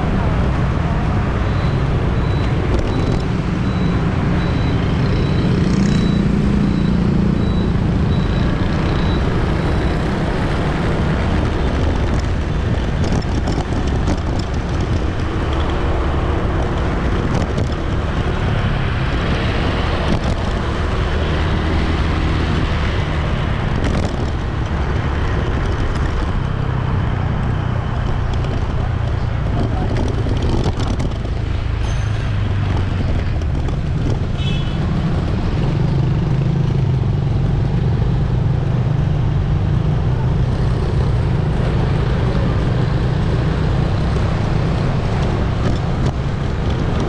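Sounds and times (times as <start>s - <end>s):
city street traffic: 0.0s - 47.0s
high repeating beep: 1.4s - 10.3s.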